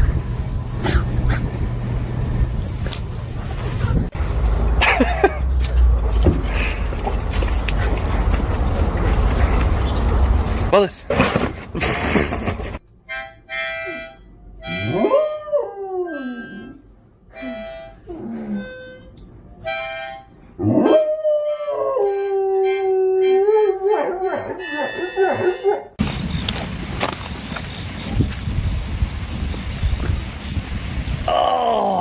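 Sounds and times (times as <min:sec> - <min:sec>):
harmonica chords: 0:13.0 - 0:15.3, 0:16.1 - 0:20.4, 0:21.5 - 0:25.9
dog howling: 0:20.6 - 0:26.0.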